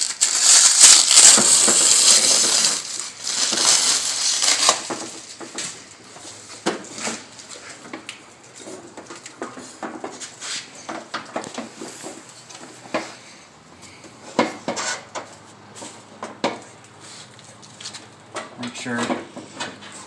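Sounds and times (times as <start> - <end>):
plastic film crinkling: 0.0 - 5.8.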